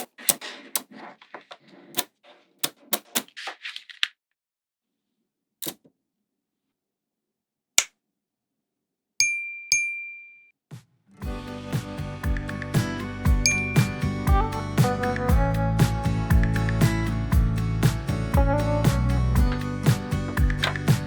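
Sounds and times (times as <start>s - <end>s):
ringing dings: 9.2s - 10.5s, 13.4s - 13.9s.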